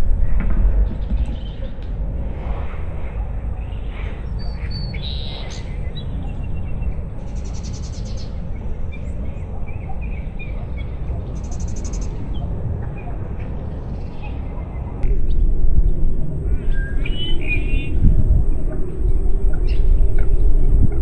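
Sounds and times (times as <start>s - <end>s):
wind rumble on microphone: 0.0s - 21.0s
birds chirping: 3.5s - 15.4s.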